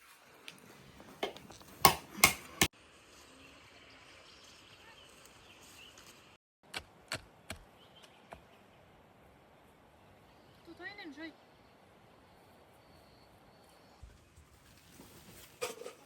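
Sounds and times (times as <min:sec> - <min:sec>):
sharp chopping knocks: 0:01.2 - 0:02.7.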